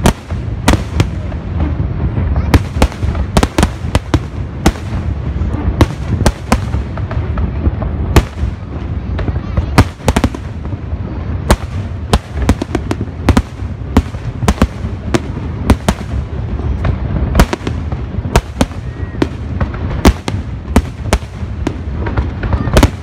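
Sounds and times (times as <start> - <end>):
continuous low rumble: 0.0 - 23.0
firework bangs: 0.0 - 23.0.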